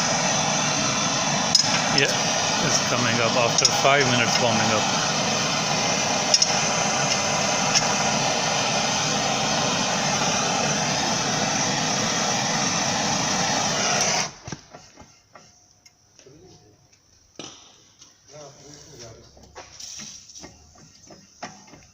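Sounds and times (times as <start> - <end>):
blowtorch flame hissing: 0.0 - 15.0.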